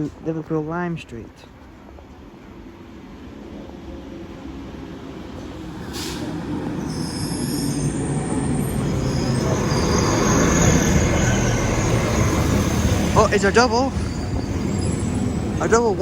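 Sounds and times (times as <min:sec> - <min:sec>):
train rumble: 0:00.0 - 0:16.0
train brakes squealing: 0:05.7 - 0:16.0
brief hiss: 0:05.8 - 0:07.4.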